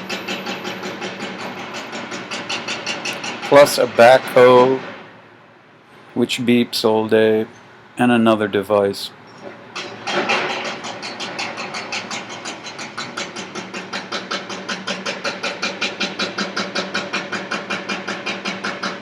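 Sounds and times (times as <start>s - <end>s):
jackhammer pounding: 0.0s - 4.8s, 9.7s - 19.0s
engine hum: 0.0s - 8.2s, 9.1s - 19.0s.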